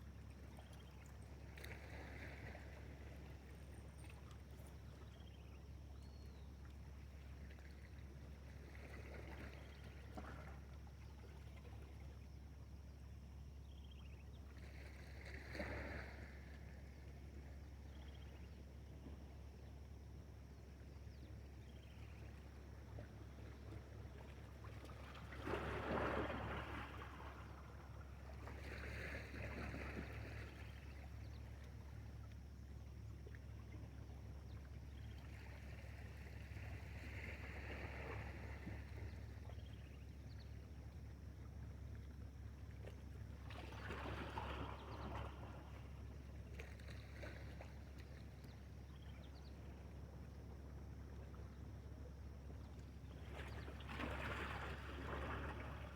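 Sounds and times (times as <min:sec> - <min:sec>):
water splashing and sloshing: 0:00.1 - 0:05.1, 0:06.7 - 0:12.2, 0:22.0 - 0:40.0, 0:40.6 - 0:55.9
steady low hum: 0:29.3 - 0:55.9.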